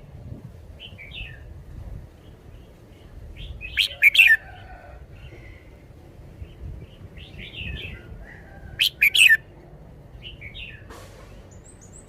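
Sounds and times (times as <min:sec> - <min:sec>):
bulbul singing: 0:02.2 - 0:04.7, 0:06.4 - 0:12.0.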